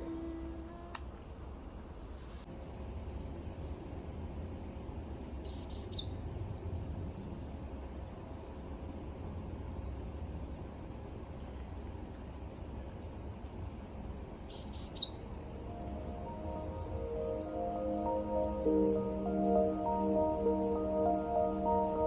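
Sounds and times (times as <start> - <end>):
bird chirps: 14.5 - 22.0
steady low rumble: 15.2 - 22.0.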